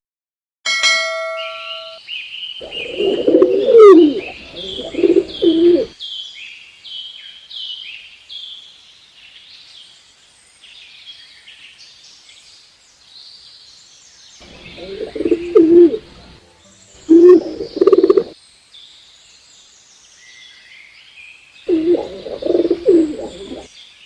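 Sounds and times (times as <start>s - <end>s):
dove cooing: 2.6s - 5.9s, 14.4s - 16.4s, 17.0s - 18.4s, 21.7s - 23.7s
high falling bird chirps: 2.6s - 6.0s, 14.4s - 18.4s, 21.7s - 23.7s.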